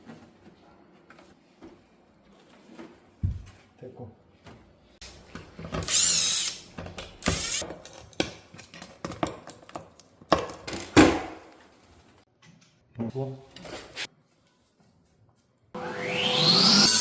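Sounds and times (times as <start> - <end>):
power drill whining: 5.8 - 6.6.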